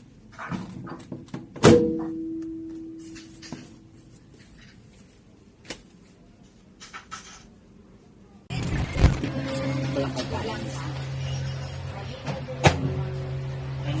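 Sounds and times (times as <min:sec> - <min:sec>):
rustling: 0:08.6 - 0:09.3.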